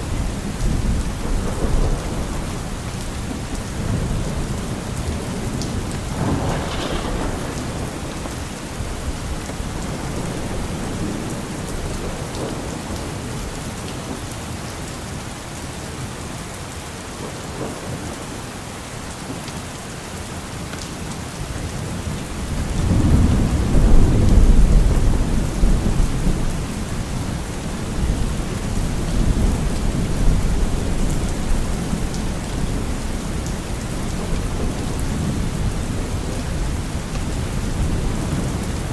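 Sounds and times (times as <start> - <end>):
rolling thunder: 0.0 - 13.5, 22.4 - 38.9
steady rain: 0.0 - 38.9.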